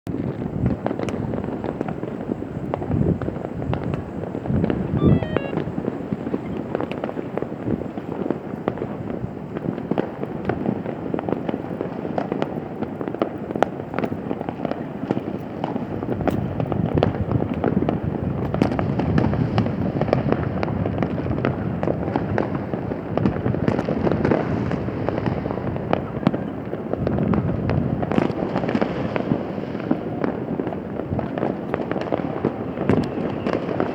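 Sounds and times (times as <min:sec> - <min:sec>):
fireworks bangs and crackles: 0:08.8 - 0:33.9.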